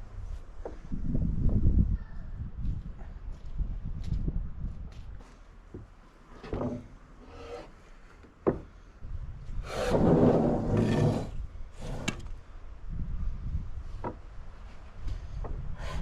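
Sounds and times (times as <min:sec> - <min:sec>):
wood scraping on wood: 0:06.3 - 0:08.6, 0:09.6 - 0:12.3.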